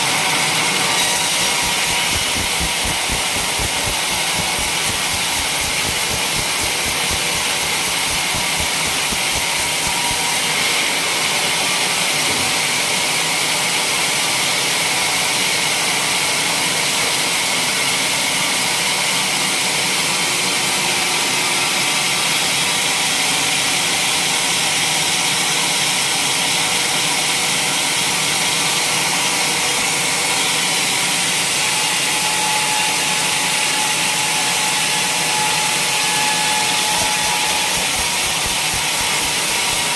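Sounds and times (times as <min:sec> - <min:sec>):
sawmill sawing logs: 0:01.0 - 0:10.5, 0:33.6 - 0:39.9.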